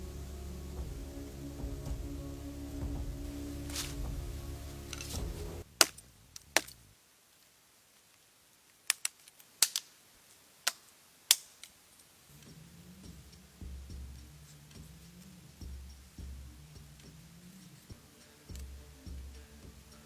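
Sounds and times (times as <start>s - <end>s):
low rumble: 0.0s - 6.3s.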